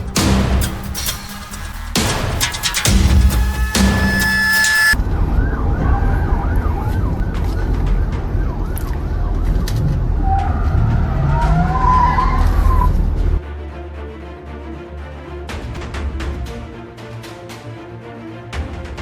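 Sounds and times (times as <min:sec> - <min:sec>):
background music: 0:00.0 - 0:19.0
emergency siren wailing: 0:04.8 - 0:12.8.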